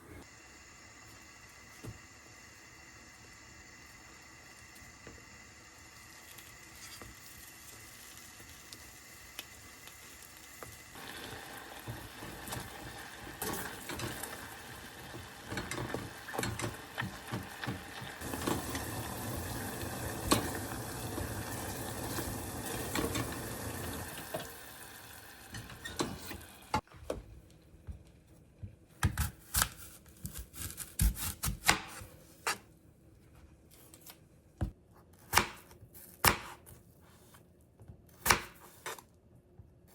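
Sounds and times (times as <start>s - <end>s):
food sizzling in a pan: 0.2s - 26.8s.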